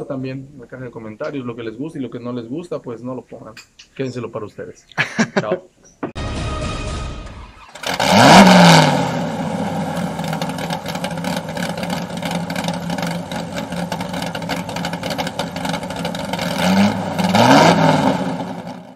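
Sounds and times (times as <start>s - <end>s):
car engine revving: 7.0s - 18.9s.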